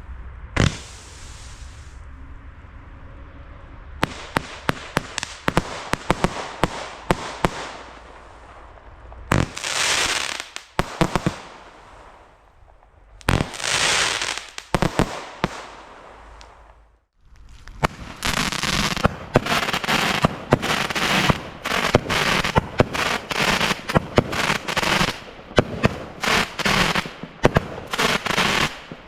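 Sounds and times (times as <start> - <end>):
firework bangs: 0.4 - 2.0, 4.0 - 29.0
firework hissing bursts: 0.6 - 2.0, 9.4 - 12.3, 13.2 - 16.6, 17.7 - 29.0.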